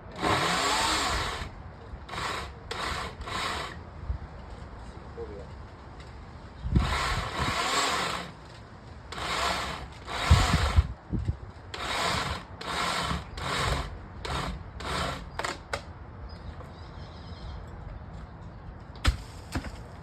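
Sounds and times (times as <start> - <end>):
saw cutting branch: 0.2 - 1.5, 2.1 - 3.8, 6.8 - 8.4, 9.1 - 10.9, 11.8 - 15.7.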